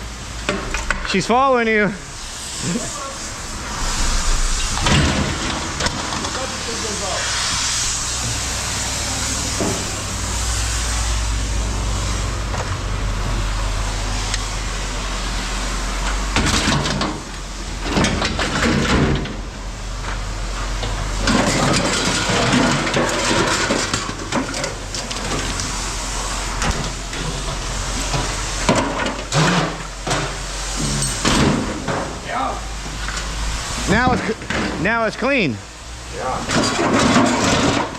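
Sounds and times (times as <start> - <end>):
knocks and scraping: 3.2 - 8.5, 20.0 - 25.8, 26.5 - 32.2, 36.4 - 37.9
vehicle engine running: 3.2 - 16.4.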